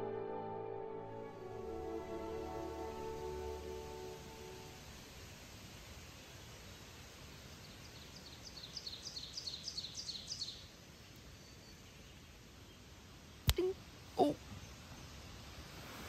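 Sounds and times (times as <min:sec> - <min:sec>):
faint outdoor ambience: 0:00.0 - 0:16.0
small bird chirping: 0:07.6 - 0:15.2.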